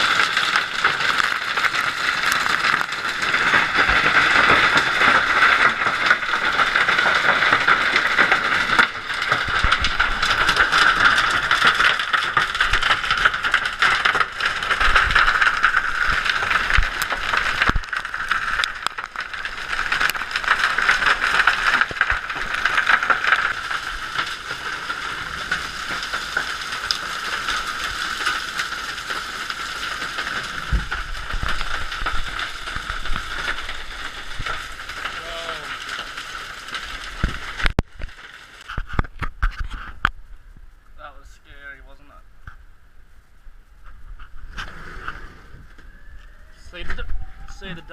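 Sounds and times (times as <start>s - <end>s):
hailstones pelting hard surfaces: 0.0s - 42.6s, 43.8s - 47.9s
heavier hailstone knocks: 29.9s - 37.9s.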